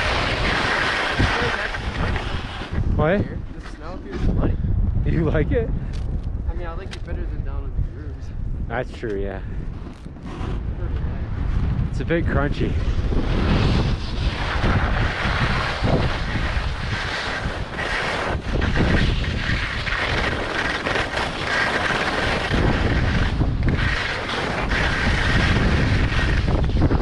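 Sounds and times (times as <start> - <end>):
skis scraping on crunchy snow: 0.0 - 2.8, 12.8 - 27.0
wind buffeting microphone: 0.0 - 27.0.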